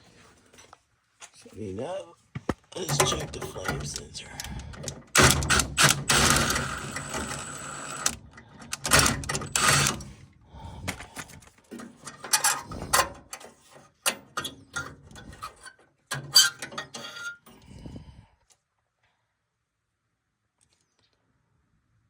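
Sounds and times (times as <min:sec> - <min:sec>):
metal parts clicking and knocking: 0:02.8 - 0:10.1, 0:10.9 - 0:17.6
mechanical whirring: 0:03.9 - 0:10.1.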